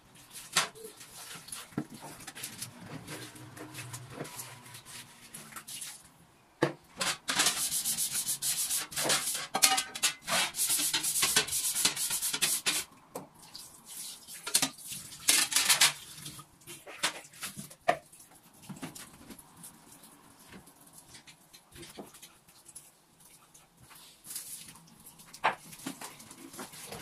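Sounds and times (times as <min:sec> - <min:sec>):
scrubbing strokes on a surface: 0:00.2 - 0:06.0, 0:07.3 - 0:09.5, 0:10.3 - 0:12.9.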